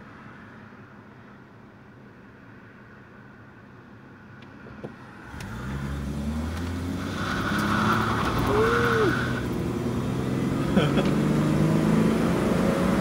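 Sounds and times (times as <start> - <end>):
car engine accelerating: 4.7 - 13.0
person saying ooh: 8.5 - 9.3.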